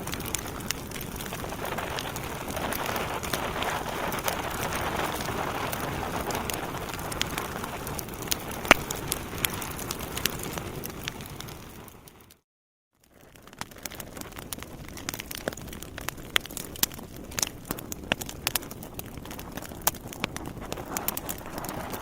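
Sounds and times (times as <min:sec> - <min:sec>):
fire flames hissing: 0:00.0 - 0:12.2, 0:13.8 - 0:22.0
burning logs crackling and popping: 0:00.0 - 0:12.4, 0:13.0 - 0:22.0.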